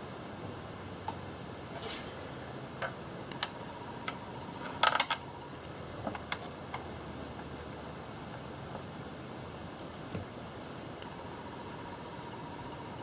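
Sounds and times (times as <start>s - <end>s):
steady hiss: 0.0s - 4.1s.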